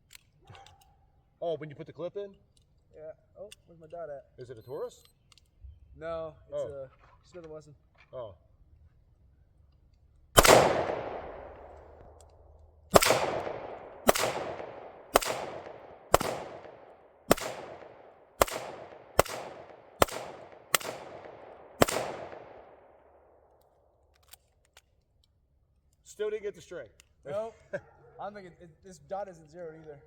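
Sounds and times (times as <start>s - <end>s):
pistol shots echoing: 10.4s - 12.3s, 12.9s - 23.4s.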